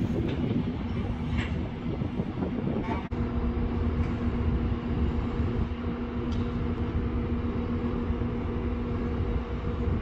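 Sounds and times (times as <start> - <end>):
freight train rumbling on rails: 0.0 - 10.0
steady hum: 2.5 - 10.0.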